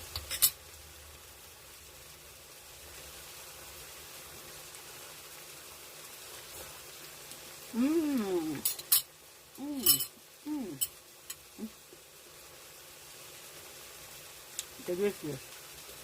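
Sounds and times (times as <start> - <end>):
faint steady hiss: 0.0 - 16.0
woman humming mmm: 7.7 - 8.7, 9.6 - 10.9, 11.5 - 11.9.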